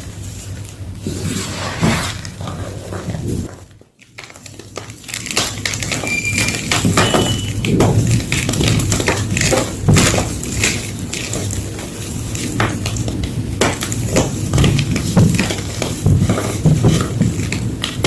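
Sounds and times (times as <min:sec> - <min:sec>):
gym chalk crunching: 0:03.4 - 0:18.0
short squeaks: 0:06.0 - 0:07.6.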